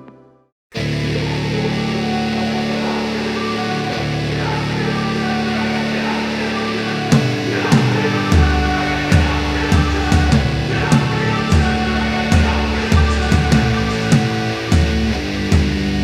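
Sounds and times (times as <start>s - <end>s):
rock guitar chords: 0.8s - 16.0s
low guitar notes: 5.4s - 16.0s
drum hits: 7.1s - 15.8s.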